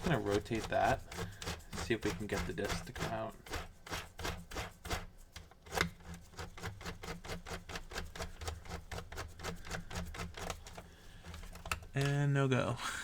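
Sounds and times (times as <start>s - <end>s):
screwdriver turning with light clicks: 10.3s - 12.1s.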